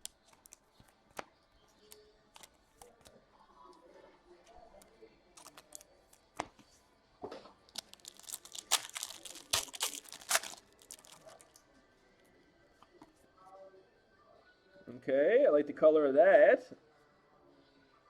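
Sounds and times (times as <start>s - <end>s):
wrapper torn open crinkling: 5.4s - 5.8s, 7.7s - 11.6s
cards being handled: 5.4s - 6.6s, 7.8s - 11.6s.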